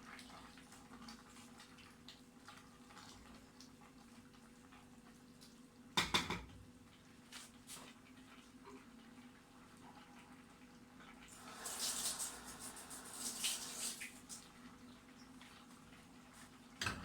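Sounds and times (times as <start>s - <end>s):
cookware and utensils clattering: 6.0s - 6.6s, 16.8s - 17.0s.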